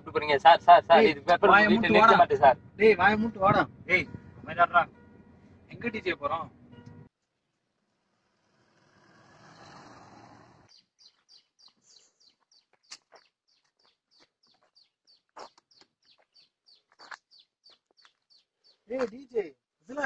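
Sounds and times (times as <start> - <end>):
car driving past: 7.8 - 10.7
bird calling in high chirps: 10.7 - 18.9.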